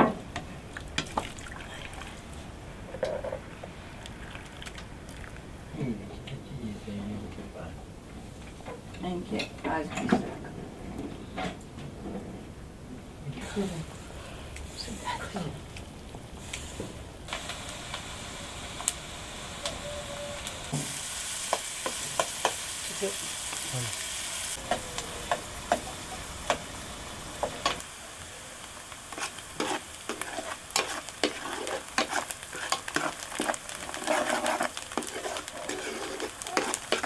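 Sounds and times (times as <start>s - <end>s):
food sizzling in pan: 13.4s - 37.0s.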